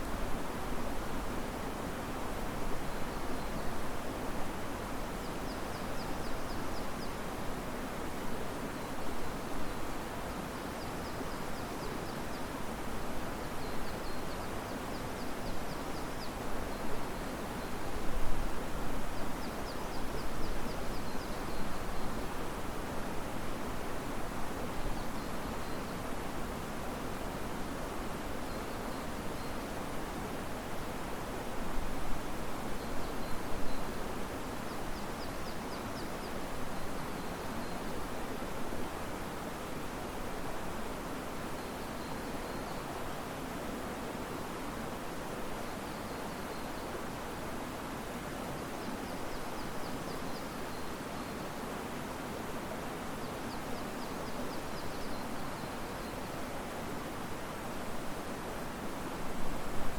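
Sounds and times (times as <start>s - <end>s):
wind through trees: 0.0s - 59.9s
river water rushing: 36.0s - 59.9s.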